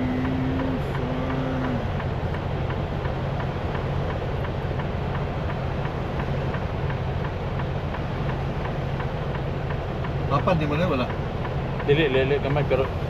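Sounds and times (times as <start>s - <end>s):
faint regular ticking: 0.0s - 13.0s
truck engine and road drone: 0.0s - 13.0s.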